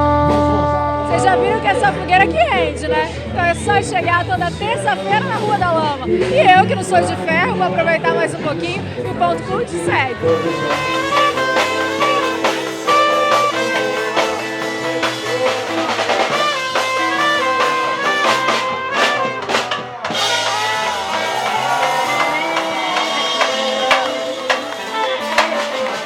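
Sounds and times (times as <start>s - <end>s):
band music: 0.0s - 26.0s
drum kit steady beat: 10.3s - 26.0s.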